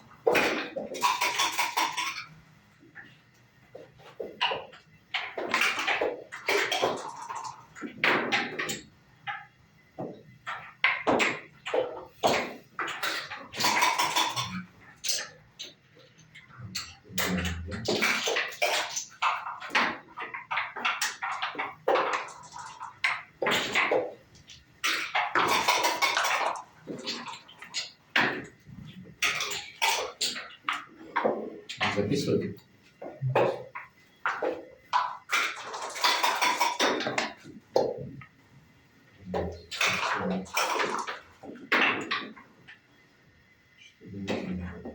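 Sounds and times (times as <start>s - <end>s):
dice and checkers clacking on board: 0.2s - 2.3s, 3.8s - 32.2s, 33.0s - 38.2s, 39.3s - 42.8s.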